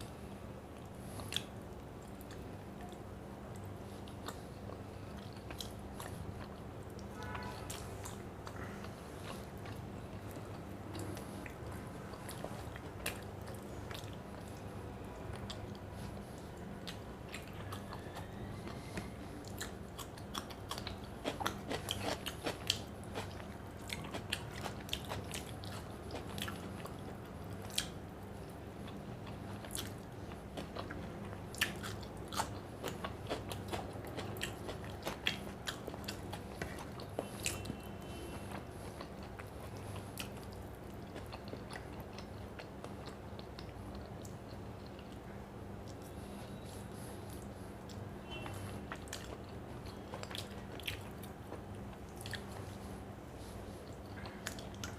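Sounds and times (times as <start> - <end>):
person chewing crunchy bites: 15.4 - 28.0, 28.9 - 45.1, 45.9 - 54.9.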